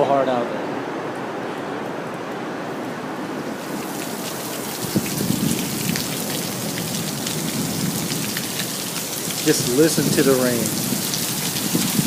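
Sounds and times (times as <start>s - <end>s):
heavy rain pouring: 2.6s - 12.0s.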